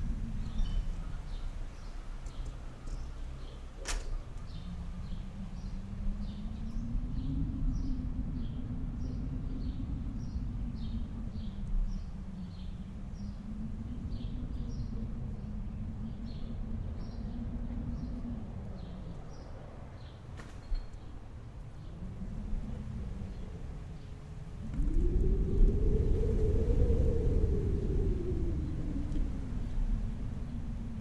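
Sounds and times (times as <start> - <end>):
low hum: 0.0 - 31.0
wind rumble: 0.0 - 31.0.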